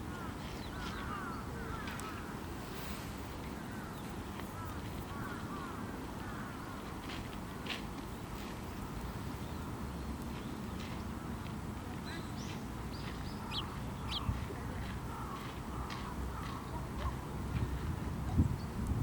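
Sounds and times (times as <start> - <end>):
small songbirds chirping: 0.0 - 7.2, 8.0 - 19.0.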